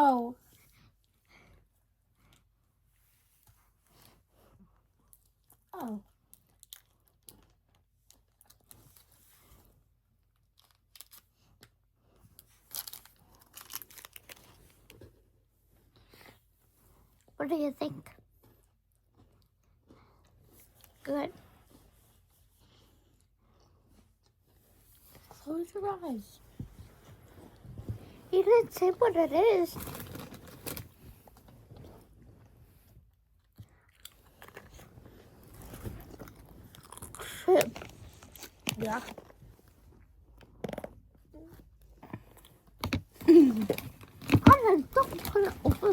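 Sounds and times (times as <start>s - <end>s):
small crackles and clicks: 5.1s - 9.1s, 10.3s - 15.1s
snack packaging crinkling: 10.5s - 11.7s, 12.4s - 15.0s, 29.7s - 31.0s, 33.8s - 39.4s
person crunching and chewing snack: 33.7s - 34.9s, 35.5s - 38.7s.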